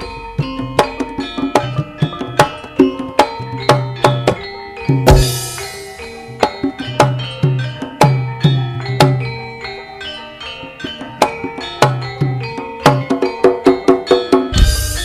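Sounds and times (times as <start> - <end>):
hand drum strokes: 0.0 - 8.2, 11.2 - 15.0
ringing metallophone tones: 0.0 - 15.0
cymbal crash: 14.5 - 15.0.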